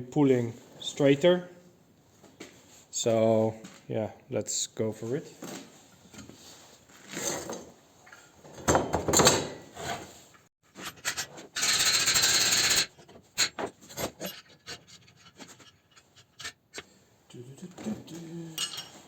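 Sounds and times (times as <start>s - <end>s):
metal tools scraping: 9.8s - 16.9s, 18.5s - 19.0s.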